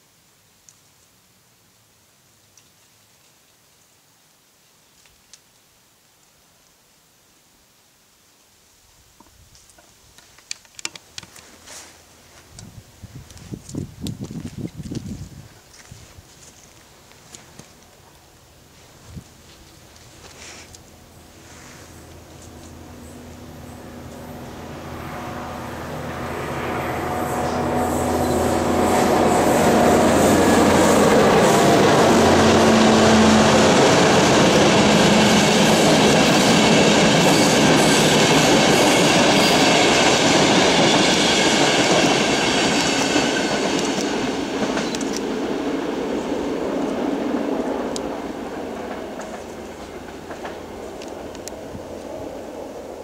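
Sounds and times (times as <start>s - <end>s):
train tone dropping in pitch: 23.0s - 40.0s
train wheels clickety-clack: 27.3s - 52.2s.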